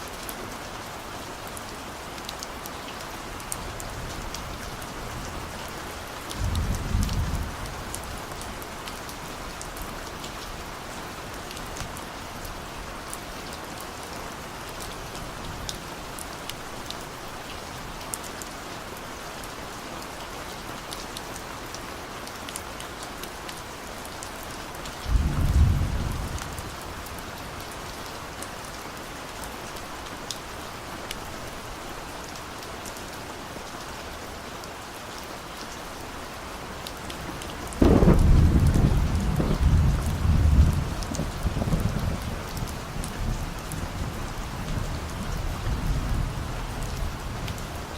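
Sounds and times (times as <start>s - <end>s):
steady rain: 0.0s - 47.9s
distant thunder rumbles: 25.1s - 26.8s, 37.7s - 42.6s.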